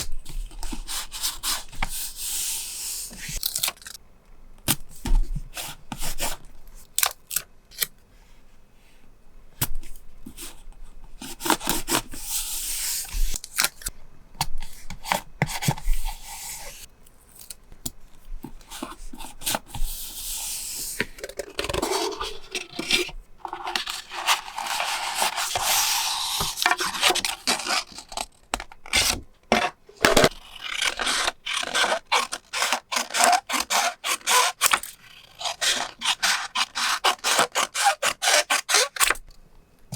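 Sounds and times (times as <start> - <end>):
paper rubbing and scraping: 18.7 - 28.3, 28.9 - 39.2.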